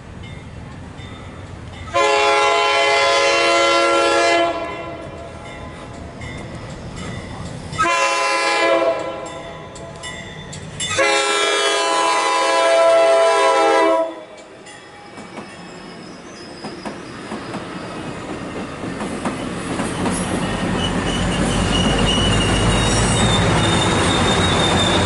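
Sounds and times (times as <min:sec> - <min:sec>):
train rumbling: 0:00.0 - 0:25.0
train horn blasts: 0:01.9 - 0:05.2, 0:07.8 - 0:09.4, 0:10.9 - 0:14.4.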